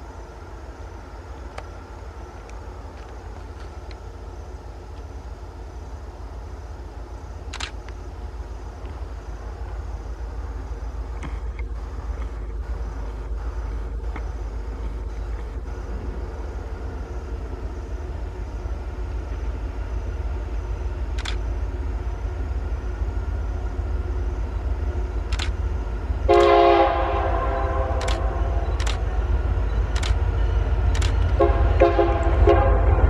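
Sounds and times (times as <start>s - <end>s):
train rumbling: 0.0s - 33.0s
sharp clicks: 7.5s - 8.0s, 21.1s - 21.4s, 25.2s - 25.6s, 28.0s - 29.1s, 29.8s - 30.3s, 30.9s - 31.4s
train air horn: 26.3s - 28.7s, 31.3s - 33.0s.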